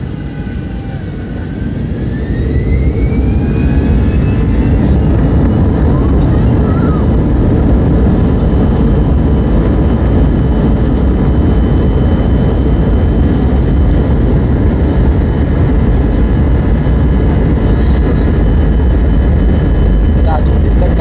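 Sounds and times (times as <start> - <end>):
jet engine cabin rumble: 0.0 - 21.0.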